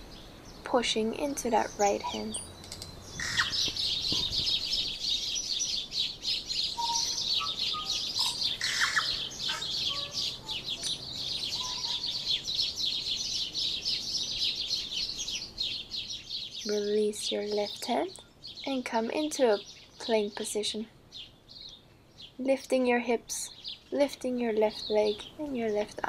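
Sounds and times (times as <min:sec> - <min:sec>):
birds chirping chorus: 0:00.0 - 0:26.0
low whistled bird notes: 0:02.0 - 0:16.8.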